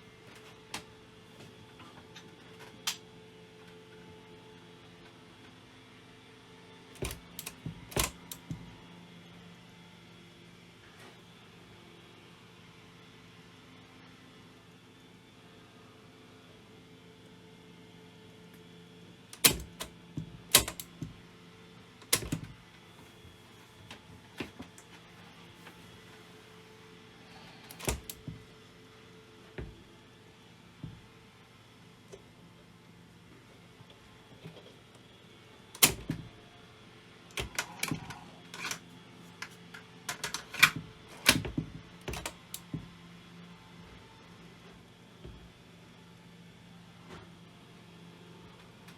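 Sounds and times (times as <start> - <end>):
sharp mechanical clicks and knocks: 7.0 - 8.7, 19.4 - 21.2, 22.0 - 22.6, 27.7 - 28.4, 35.8 - 36.3, 37.3 - 38.8, 39.4 - 42.7.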